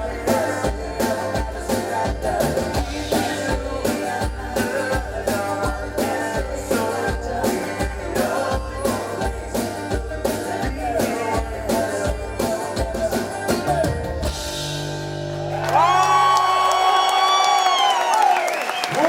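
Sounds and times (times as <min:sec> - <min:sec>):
live folk-rock band playing: 0:00.0 - 0:16.6
crowd cheering: 0:15.4 - 0:19.0.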